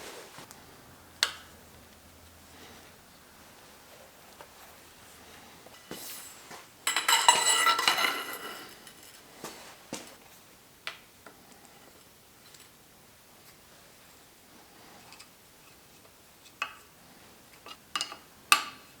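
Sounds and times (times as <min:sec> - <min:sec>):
metal parts clattering: 0:06.9 - 0:09.2.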